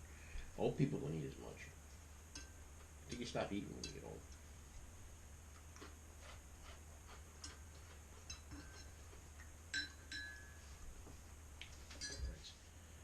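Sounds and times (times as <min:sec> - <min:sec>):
low steady hum: 0:00.0 - 0:13.0
dishes clinking: 0:08.2 - 0:09.1, 0:09.7 - 0:10.7, 0:11.9 - 0:12.4
ringing clinks: 0:09.7 - 0:10.6, 0:12.0 - 0:12.4.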